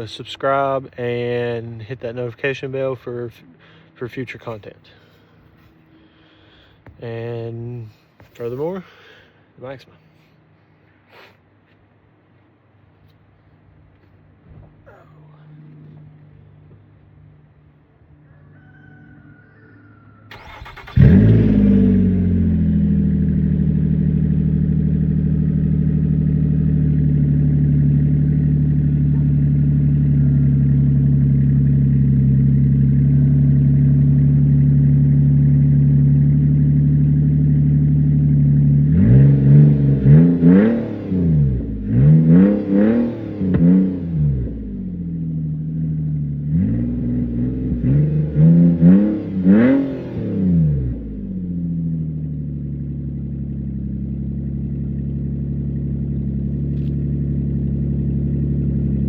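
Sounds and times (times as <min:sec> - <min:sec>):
car engine revving: 0:20.3 - 0:59.0
car engine starting: 0:20.3 - 0:59.0
loud car engine idle: 0:20.4 - 0:39.0, 0:51.0 - 0:59.0.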